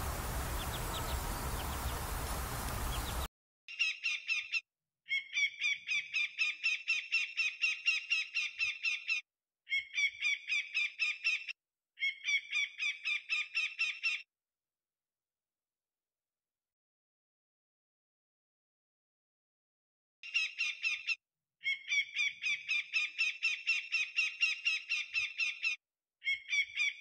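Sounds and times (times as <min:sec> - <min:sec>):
noisy outdoor ambience: 0:00.0 - 0:03.3
bird calling rapid notes: 0:00.0 - 0:05.8.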